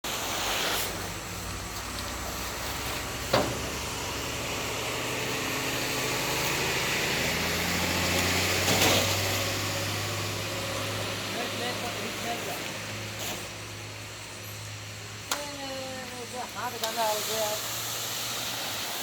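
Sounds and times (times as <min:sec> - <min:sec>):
short burst of hiss: 0:00.1 - 0:01.4, 0:13.1 - 0:13.7, 0:16.7 - 0:19.0
truck engine running: 0:00.9 - 0:18.5.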